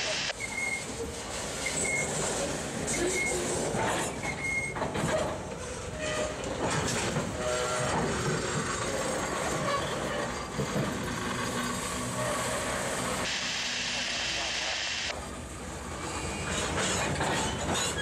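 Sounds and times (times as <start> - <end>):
hiss: 0.0 - 3.4, 11.7 - 15.1
wheel squeals: 0.3 - 1.0, 1.6 - 5.4, 6.0 - 10.8, 16.1 - 18.0.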